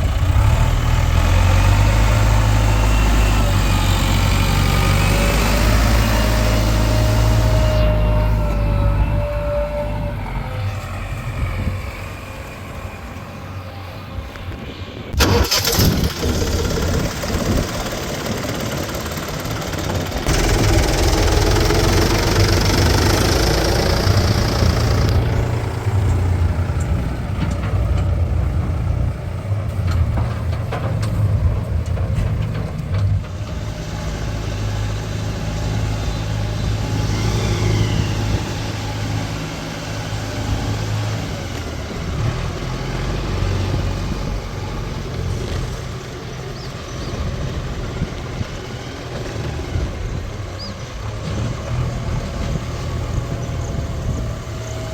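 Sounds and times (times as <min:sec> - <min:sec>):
diesel engine under load: 0:00.0 - 0:54.9
loud clatter: 0:15.2 - 0:25.6.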